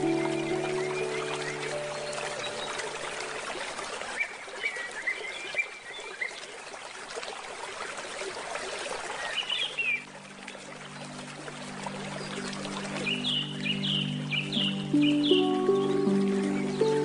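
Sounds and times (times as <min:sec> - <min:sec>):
bird chirping: 0:00.0 - 0:03.4, 0:13.1 - 0:17.0
stream running: 0:00.0 - 0:17.0.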